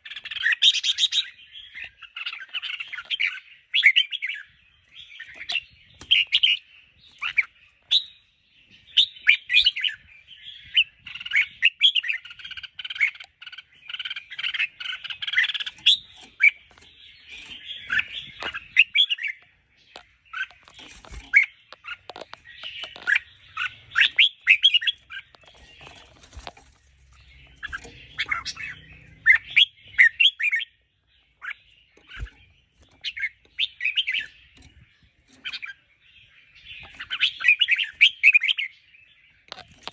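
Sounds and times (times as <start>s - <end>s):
bird chattering whistled song: 8.9s - 19.4s, 20.3s - 26.0s, 27.2s - 34.4s, 35.4s - 38.9s.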